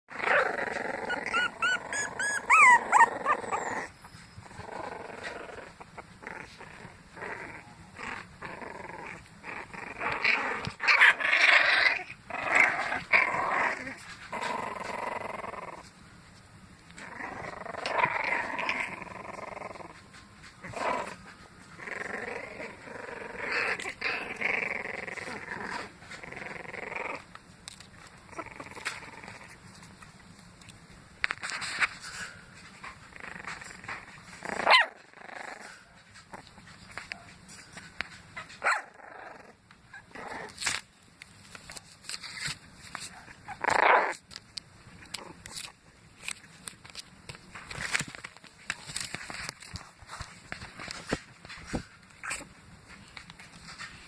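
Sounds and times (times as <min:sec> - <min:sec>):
puppies growling: 0:00.1 - 0:16.0, 0:16.8 - 0:30.0, 0:30.6 - 0:40.8, 0:41.5 - 0:54.0
puppies squealing: 0:00.2 - 0:04.6.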